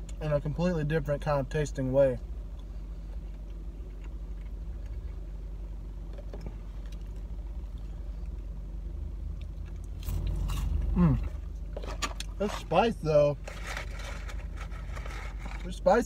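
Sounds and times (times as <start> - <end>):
car engine idling: 0.0 - 16.0
crunchy bite and chewing: 9.4 - 11.4.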